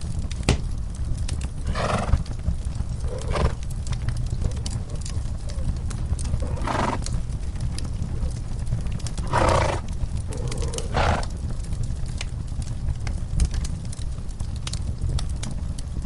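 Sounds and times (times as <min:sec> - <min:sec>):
low rumble: 0:00.0 - 0:12.6
wood fire crackling: 0:00.0 - 0:16.0
horses blowing out: 0:01.7 - 0:02.2, 0:03.0 - 0:03.6, 0:06.3 - 0:07.0, 0:09.2 - 0:11.4.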